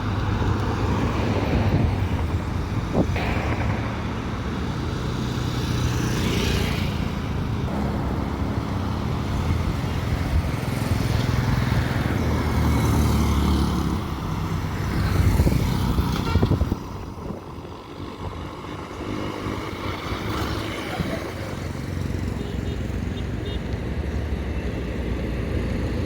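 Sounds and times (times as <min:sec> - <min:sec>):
vehicle engine droning: 0:00.0 - 0:16.0
street noise: 0:00.0 - 0:26.0.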